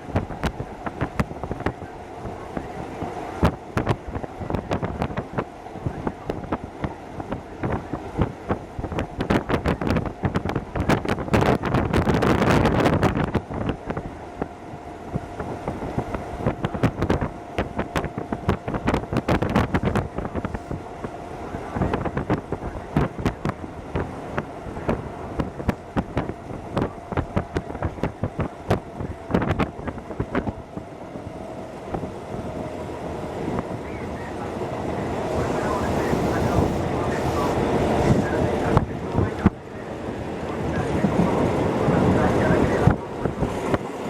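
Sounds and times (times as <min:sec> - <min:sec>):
train running rumble: 0:00.0 - 0:44.0.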